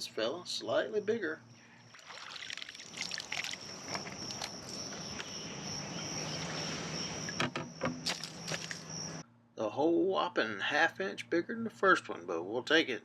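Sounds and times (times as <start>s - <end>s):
high insect drone: 0.6s - 9.2s
water splashing: 1.8s - 5.1s, 5.9s - 8.9s.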